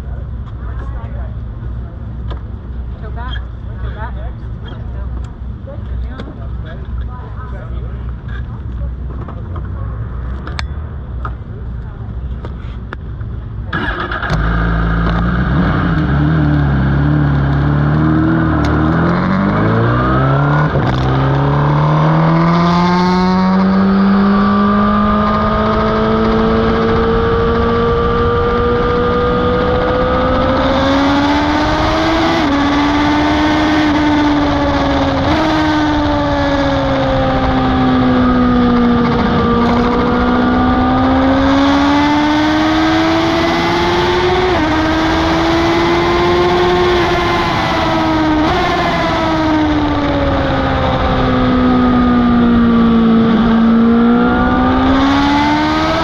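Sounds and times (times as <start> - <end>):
superbike engine revving: 13.7 - 56.0.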